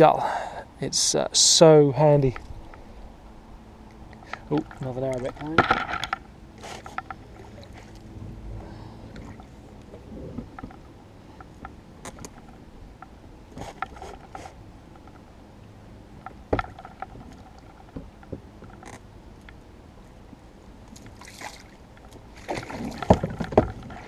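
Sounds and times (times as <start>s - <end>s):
oar creaking and knocking on boat: 4.2s - 7.9s, 9.2s - 15.3s, 16.1s - 19.1s, 22.0s - 24.0s.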